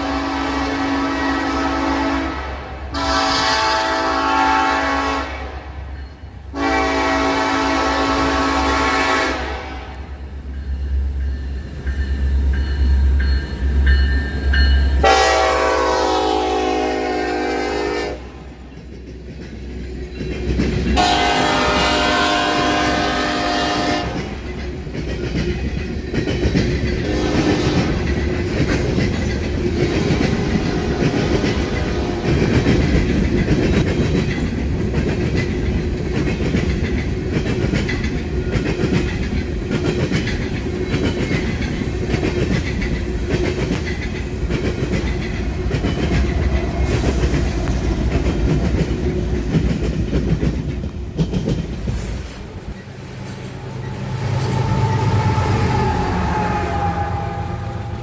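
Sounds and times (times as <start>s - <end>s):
locomotive horn: 0.0s - 5.8s, 6.5s - 10.1s, 15.0s - 18.6s, 21.0s - 24.5s, 27.0s - 28.1s, 53.6s - 58.0s
train wheels clacking over rails: 18.6s - 56.3s.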